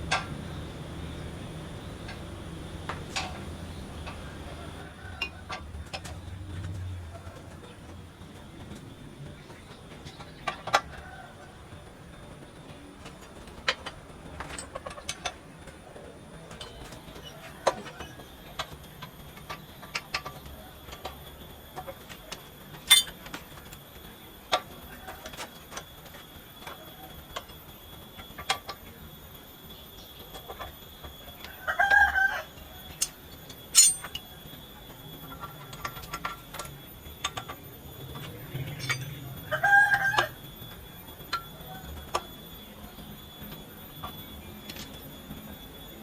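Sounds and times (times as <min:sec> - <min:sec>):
sharp clinks and knocks: 0:22.8 - 0:23.2, 0:33.0 - 0:34.2, 0:38.2 - 0:39.3.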